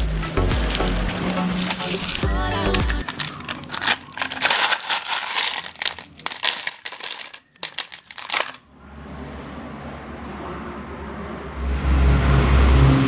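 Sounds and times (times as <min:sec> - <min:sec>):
metallic clinks and rattles: 0:00.0 - 0:08.6.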